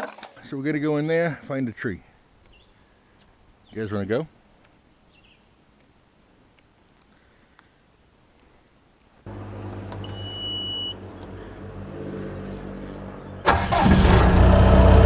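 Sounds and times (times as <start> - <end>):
diesel engine starting and running: 9.3 - 15.0.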